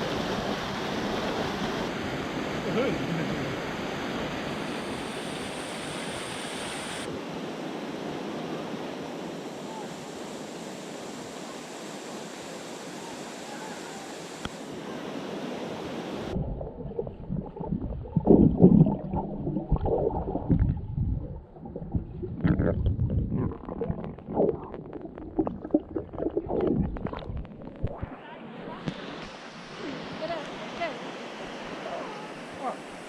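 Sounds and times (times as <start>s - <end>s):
water cascading into pool: 16.3s - 28.0s
underwater gurgles: 16.3s - 28.2s
low underwater thumps: 16.4s - 28.1s.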